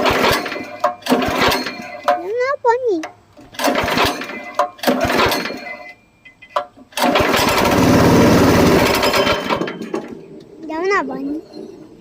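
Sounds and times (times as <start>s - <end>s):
small engine starting and stalling: 0.0s - 2.1s, 3.4s - 5.9s, 6.9s - 10.2s.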